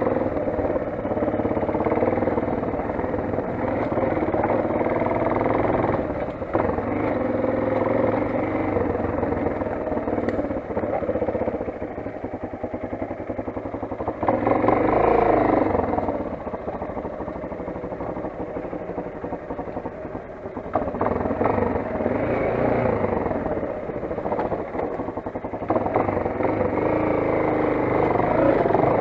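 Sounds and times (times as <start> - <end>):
dirt bike engine running: 0.0 - 29.0.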